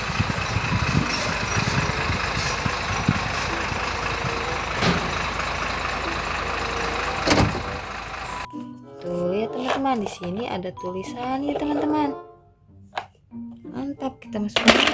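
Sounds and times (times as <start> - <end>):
truck engine idling: 0.0 - 8.5.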